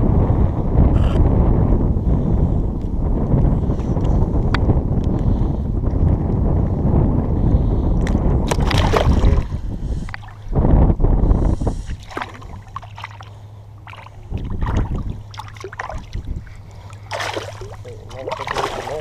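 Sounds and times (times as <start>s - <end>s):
wind rumbling on microphone: 0.0s - 19.0s
water sloshing around wading legs: 8.5s - 10.5s, 11.8s - 19.0s.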